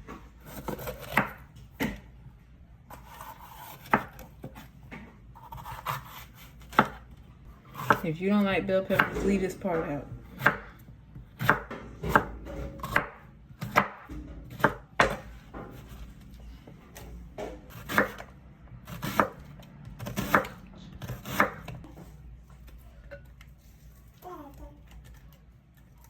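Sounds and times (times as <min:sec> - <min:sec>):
knife chopping vegetables: 0:00.1 - 0:02.1, 0:02.9 - 0:16.2, 0:16.8 - 0:22.2.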